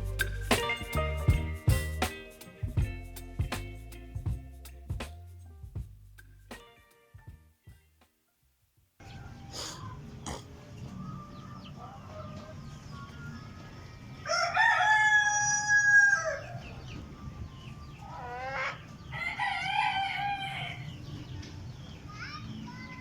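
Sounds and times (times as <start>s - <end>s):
rooster crowing: 14.2s - 16.6s, 18.1s - 20.9s.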